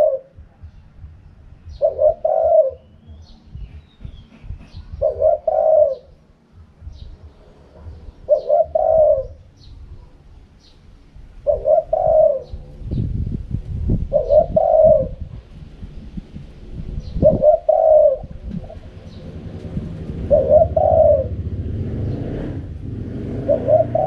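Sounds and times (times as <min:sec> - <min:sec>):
dove cooing: 0:00.0 - 0:00.8, 0:01.6 - 0:03.8, 0:04.5 - 0:10.2, 0:11.4 - 0:13.1, 0:13.9 - 0:15.6, 0:17.0 - 0:22.1, 0:23.4 - 0:24.0
low rumble: 0:00.0 - 0:24.0
small bird chirping: 0:06.8 - 0:10.9.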